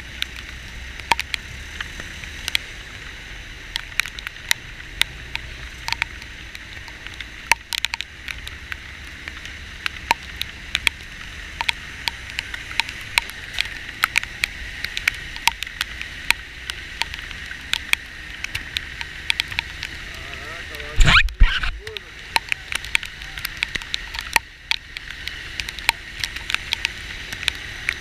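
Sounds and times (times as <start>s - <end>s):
raindrops hitting near microphone: 0.0s - 28.0s
heavy rain hissing: 10.5s - 24.2s.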